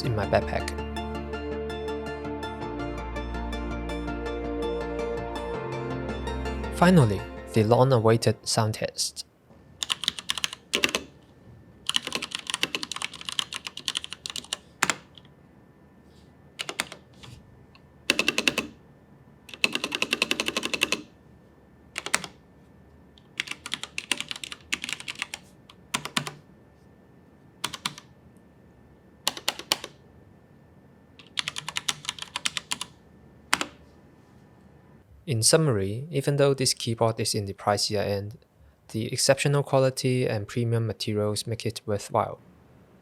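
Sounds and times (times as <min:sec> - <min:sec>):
mechanical keyboard typing: 0:09.8 - 0:11.1, 0:11.9 - 0:15.3, 0:16.6 - 0:17.4, 0:18.1 - 0:18.8, 0:19.5 - 0:21.1, 0:22.0 - 0:22.4, 0:23.2 - 0:26.4, 0:27.6 - 0:28.1, 0:29.3 - 0:30.0, 0:31.2 - 0:33.8.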